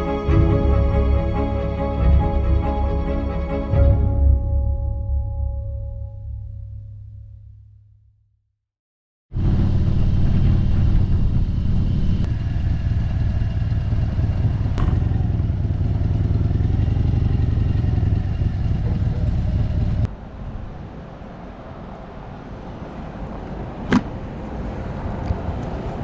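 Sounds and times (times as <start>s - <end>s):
motorcycle engine rumbling: 9.4s - 20.1s.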